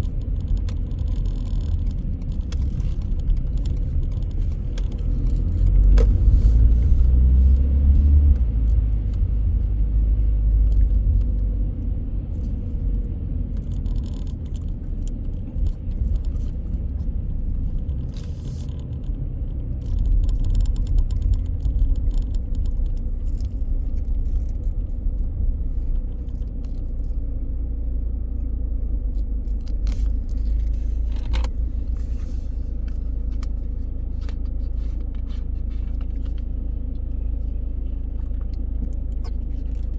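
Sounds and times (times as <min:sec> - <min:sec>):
light clicks and rattles: 0:00.0 - 0:06.2, 0:10.6 - 0:27.4
car engine and tyres rumbling: 0:00.0 - 0:39.9.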